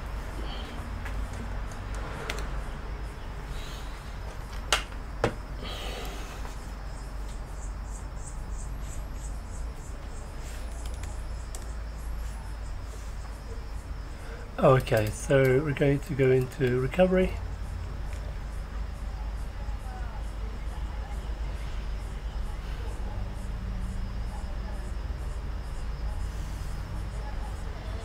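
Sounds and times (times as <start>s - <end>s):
sharp clicks: 14.7s - 15.6s.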